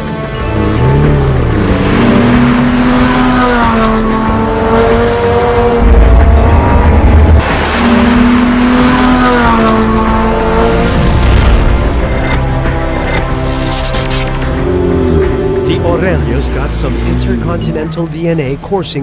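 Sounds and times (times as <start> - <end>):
background music: 0.0 - 19.0
sports car engine running: 0.1 - 18.7
heavy bass swell: 5.0 - 17.6.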